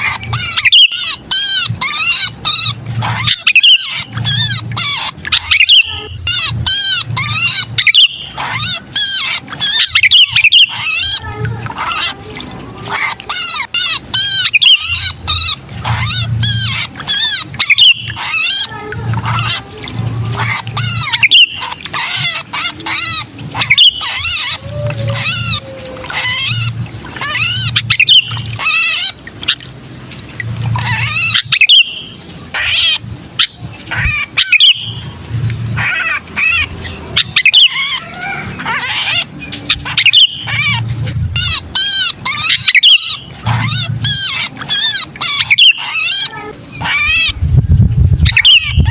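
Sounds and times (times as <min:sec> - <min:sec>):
birds harsh rapid chattering: 0:00.0 - 0:48.9
low rumbling bursts: 0:46.5 - 0:48.9.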